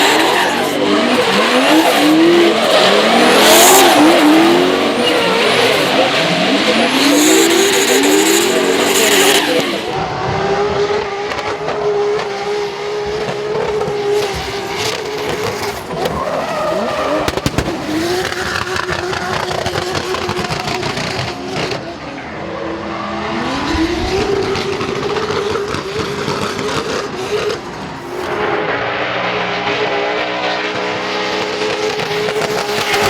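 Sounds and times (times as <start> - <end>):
car engine at high revs: 0.0 - 33.0
exhaust pops: 13.0 - 21.8
tyres squealing: 14.2 - 21.7.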